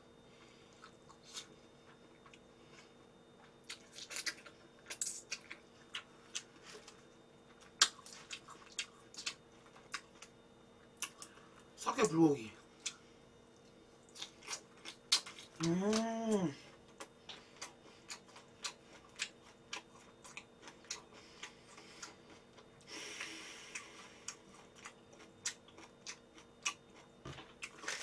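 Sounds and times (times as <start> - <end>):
person humming mmm: 15.6 - 16.7.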